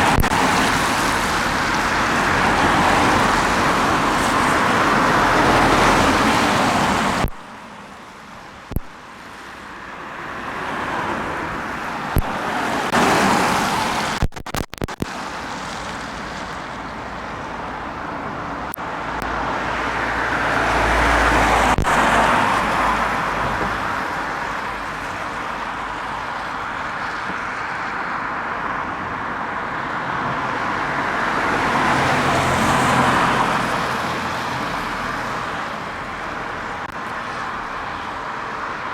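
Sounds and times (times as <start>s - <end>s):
vehicles passing: 0.0s - 38.9s.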